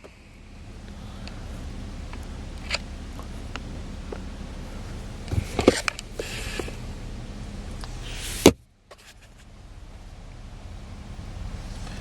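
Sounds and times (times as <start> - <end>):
car engine idling: 0.0 - 12.0
light clicks and knocks: 2.1 - 7.0.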